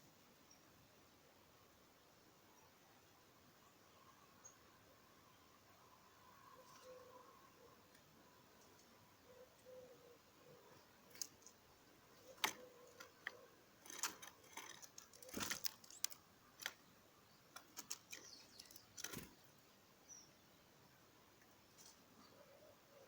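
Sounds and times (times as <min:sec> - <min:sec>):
faint bird chirps: 0:02.4 - 0:23.0
beaks pecking at seed: 0:10.6 - 0:19.6.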